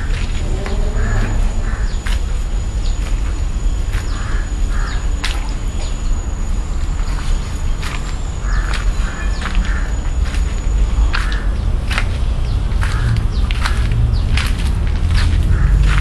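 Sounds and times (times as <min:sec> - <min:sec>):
harsh crow-like calls: 0:00.0 - 0:02.4, 0:04.0 - 0:06.0, 0:08.4 - 0:10.2, 0:11.1 - 0:11.6, 0:12.8 - 0:13.9, 0:15.2 - 0:16.0
steady low rumble: 0:00.0 - 0:16.0.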